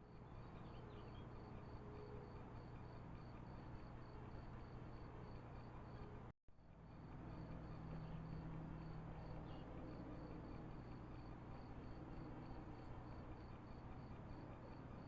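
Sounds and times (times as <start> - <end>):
cricket chirping: 0.2 - 6.0, 6.9 - 15.0.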